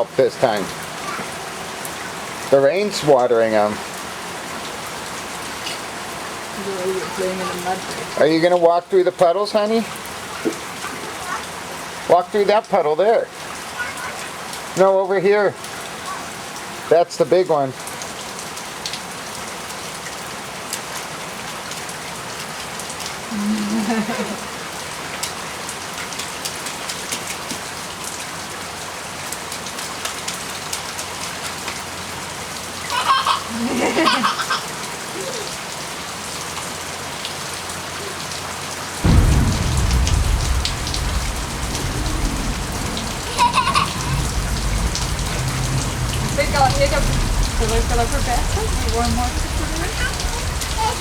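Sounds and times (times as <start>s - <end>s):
rain on ground and puddles: 0.0s - 51.0s
low rumble: 39.0s - 51.0s.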